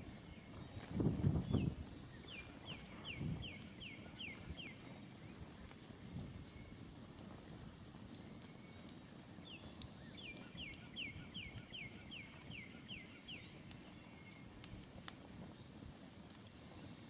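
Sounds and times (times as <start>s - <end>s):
campfire crackling faintly: 0.0s - 17.0s
songbird whistling: 1.4s - 5.4s, 9.4s - 14.4s.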